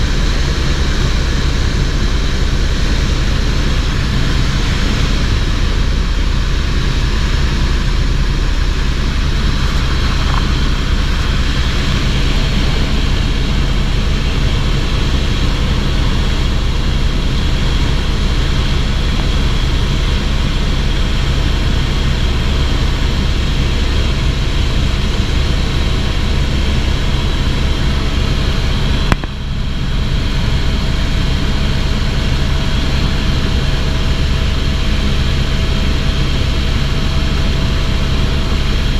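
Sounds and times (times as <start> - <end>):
helicopter engine and rotor noise: 0.0 - 38.9.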